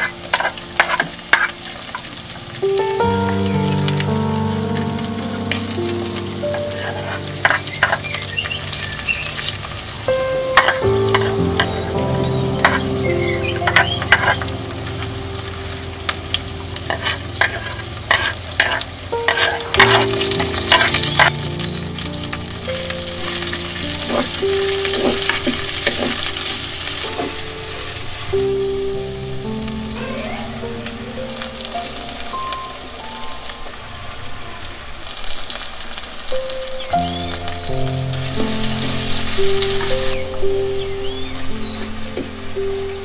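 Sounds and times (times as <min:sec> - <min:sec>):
soft background music: 0:00.0 - 0:34.4, 0:36.3 - 0:43.0
vegetables sizzling in a pot: 0:00.0 - 0:43.0
spoon scraping a clay pot: 0:16.9 - 0:21.3.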